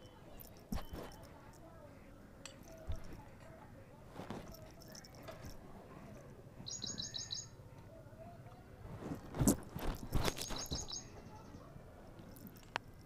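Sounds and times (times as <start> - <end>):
small bird chirping: 6.6 - 7.6, 10.1 - 11.7
dull bumps and rustling: 8.9 - 10.9.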